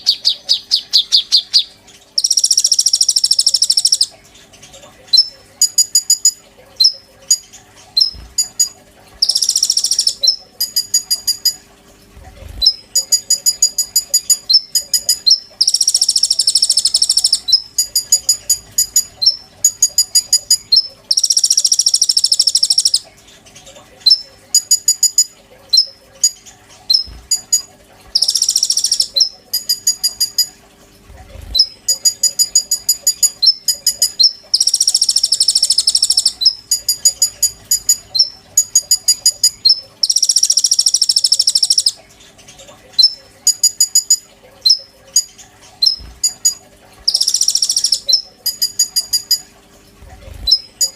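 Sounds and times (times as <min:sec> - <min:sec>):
buzzy bird trills: 0:00.0 - 0:50.9
faint steady hum: 0:00.0 - 0:50.9.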